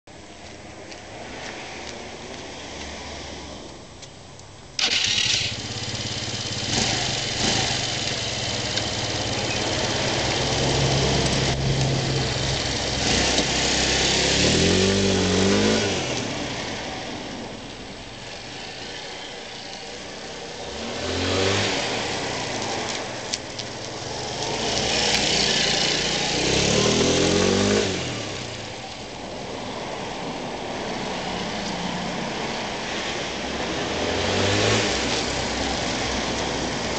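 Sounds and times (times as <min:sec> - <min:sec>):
scooter engine starting: 0:04.8 - 0:10.7
scooter engine idling and revving: 0:04.8 - 0:36.9.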